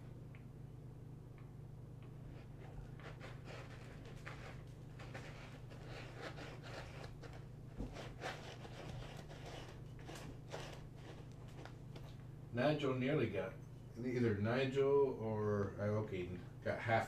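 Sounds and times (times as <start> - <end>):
low hum: 0.0 - 17.0
kittens scratching and rustling: 2.0 - 12.3.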